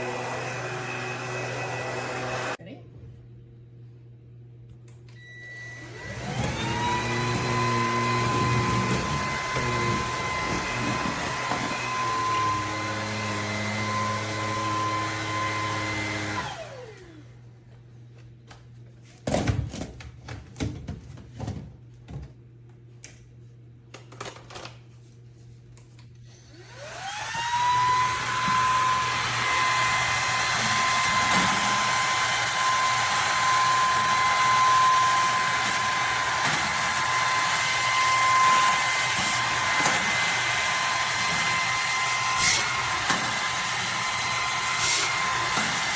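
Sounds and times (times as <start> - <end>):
vacuum cleaner motor whine: 0.0 - 2.6, 5.1 - 17.4, 26.2 - 45.9.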